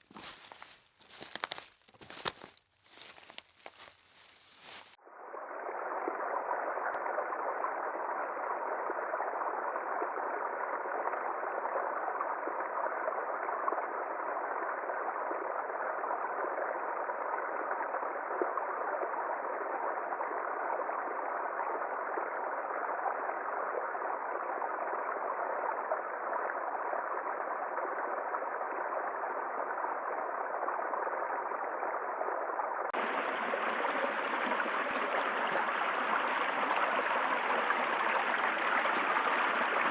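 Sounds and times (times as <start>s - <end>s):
flowing water rushing: 0.0s - 5.0s, 33.0s - 39.9s.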